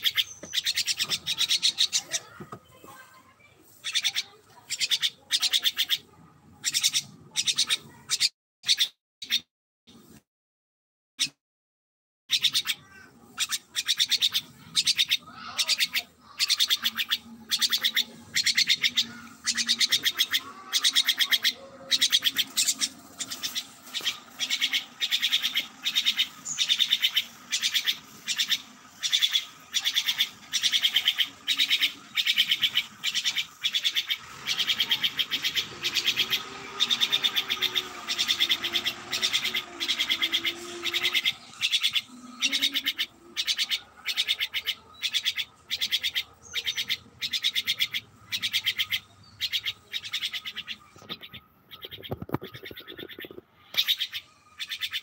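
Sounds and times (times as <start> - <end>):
bird trilling: 0.0 - 2.5, 3.8 - 9.4, 12.3 - 55.0.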